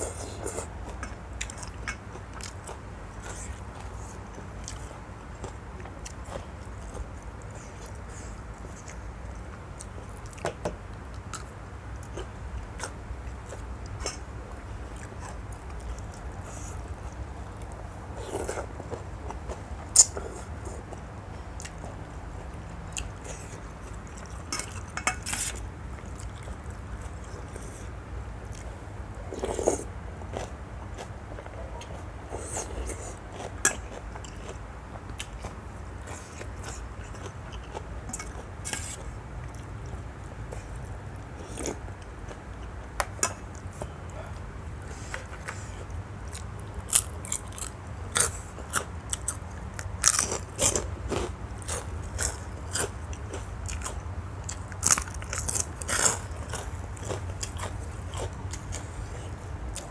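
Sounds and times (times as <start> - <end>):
person chewing and biting: 46.3 - 59.9.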